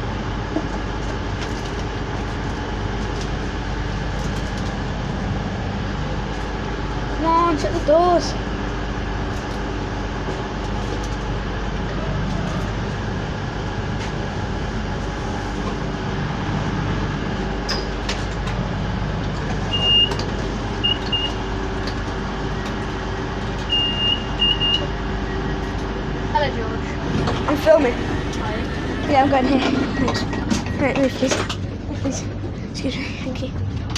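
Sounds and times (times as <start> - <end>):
train diesel engine running: 0.0 - 33.9.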